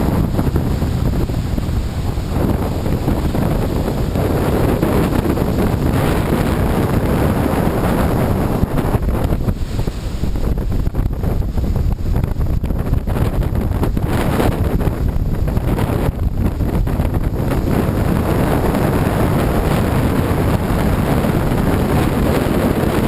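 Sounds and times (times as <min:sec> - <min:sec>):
surf breaking on beach: 0:00.0 - 0:23.0
wind buffeting microphone: 0:00.0 - 0:23.0.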